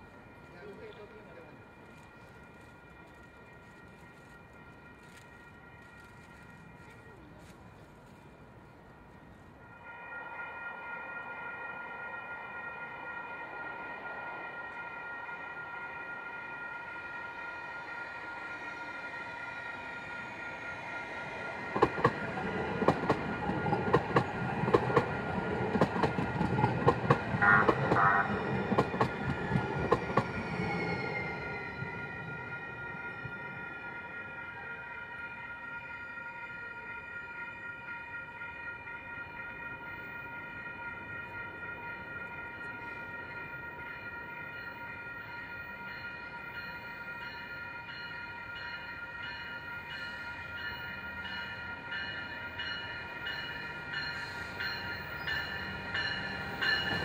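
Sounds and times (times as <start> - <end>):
train low rumble: 0.0 - 57.0
train wheels clacking: 21.7 - 30.6.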